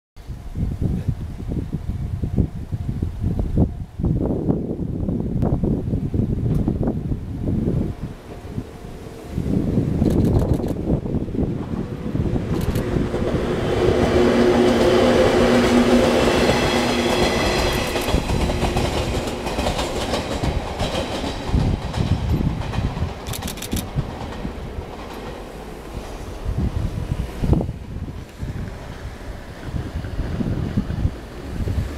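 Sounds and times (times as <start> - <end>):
electric train whine: 10.8 - 31.9
wheels clacking over rail joints: 13.1 - 26.2.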